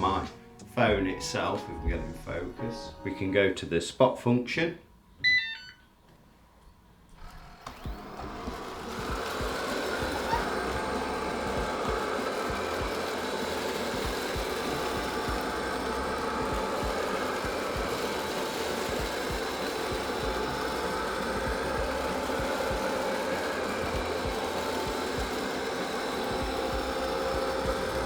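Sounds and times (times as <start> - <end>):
robot vacuum whirring: 7.1 - 28.0.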